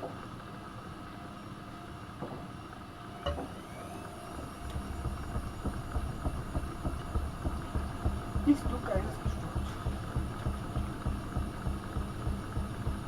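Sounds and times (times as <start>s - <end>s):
washing machine drum turning: 4.3s - 13.0s.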